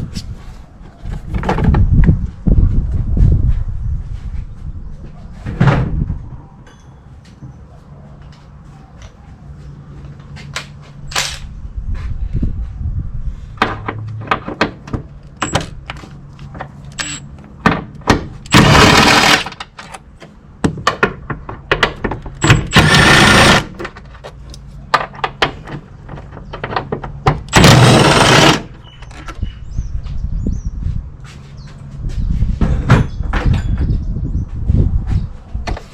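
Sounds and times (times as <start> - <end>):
power ratchet spinning: 18.5 - 19.6, 22.4 - 23.8, 27.5 - 28.8.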